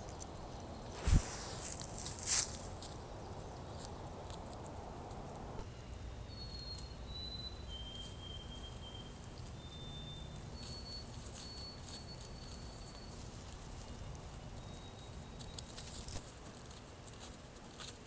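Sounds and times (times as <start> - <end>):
songbird whistling: 6.2 - 13.3, 13.9 - 16.2.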